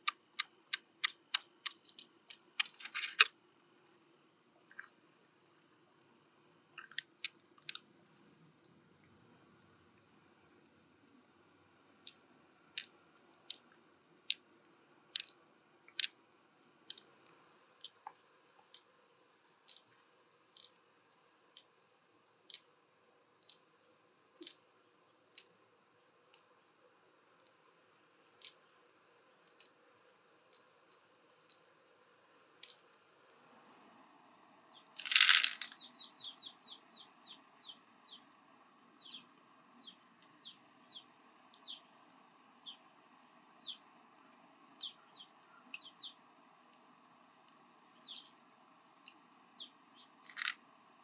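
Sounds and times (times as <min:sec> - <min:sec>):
sharp light clicks: 0:00.0 - 0:03.3
faint high whine: 0:07.8 - 0:51.0.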